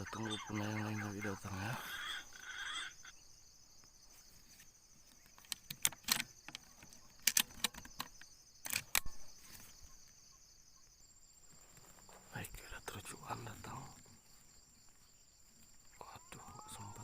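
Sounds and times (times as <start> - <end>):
insect chirring: 0.0 - 17.0
sharp clicks: 5.4 - 9.2.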